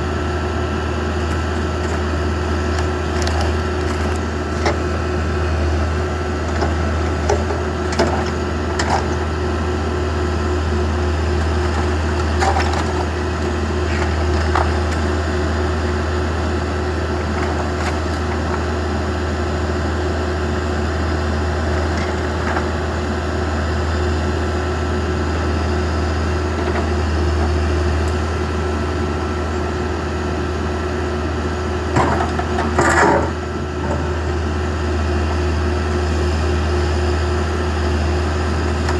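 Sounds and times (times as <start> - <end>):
backhoe engine running: 0.0 - 38.9
wood cracking and splintering: 2.7 - 4.8.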